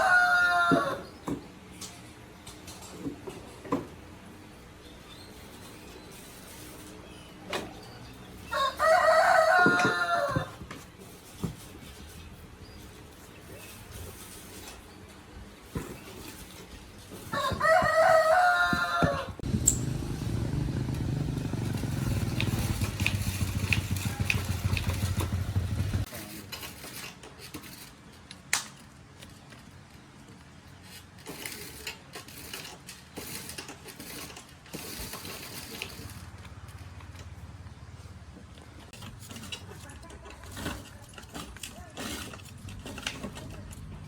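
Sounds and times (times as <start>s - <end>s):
rooster crowing: 0.0s - 1.0s, 8.5s - 10.6s, 17.3s - 19.4s.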